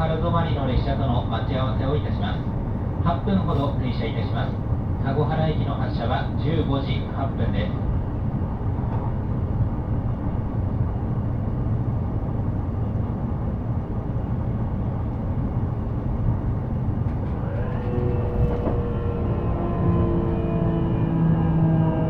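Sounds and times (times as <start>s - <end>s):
train wheels rumbling on rail: 0.0s - 22.0s
traction motor whine: 17.1s - 22.0s.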